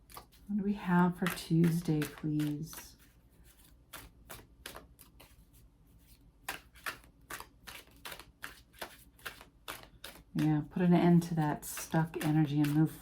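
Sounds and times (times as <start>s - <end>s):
cards shuffled by hand: 0.0s - 13.0s.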